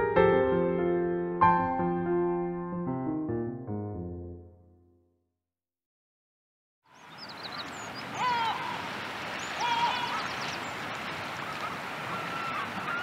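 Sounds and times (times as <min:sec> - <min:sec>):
birds chirping: 0:06.9 - 0:13.0
birds honking: 0:06.9 - 0:13.0.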